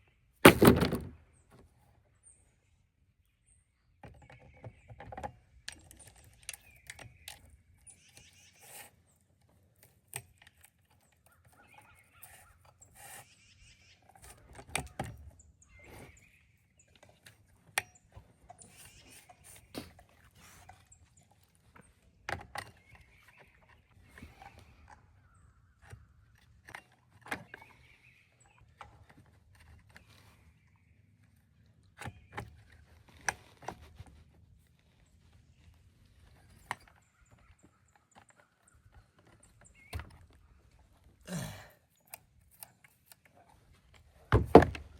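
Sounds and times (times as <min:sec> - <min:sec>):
knocks and clatter: 0:00.4 - 0:01.2
bird calls: 0:02.2 - 0:09.3, 0:10.4 - 0:33.2, 0:34.8 - 0:43.4.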